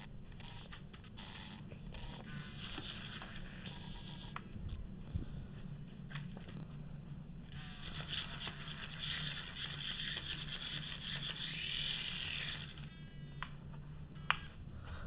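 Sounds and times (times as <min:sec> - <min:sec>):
toy motor buzzing and rattling: 0:00.5 - 0:04.4, 0:07.5 - 0:13.3.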